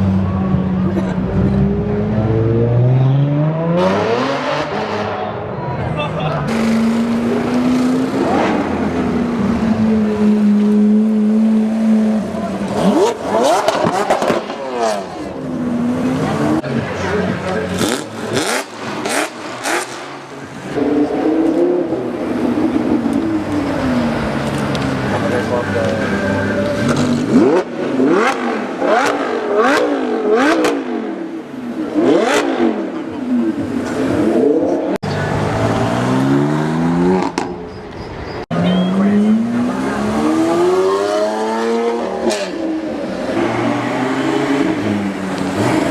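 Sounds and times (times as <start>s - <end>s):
sports car engine revving: 6.5s - 37.6s, 38.9s - 45.9s.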